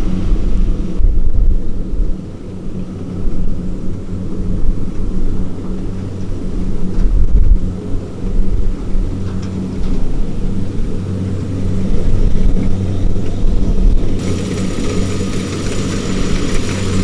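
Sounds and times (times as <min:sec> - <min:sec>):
farm machinery diesel engine: 0:12.6 - 0:17.0.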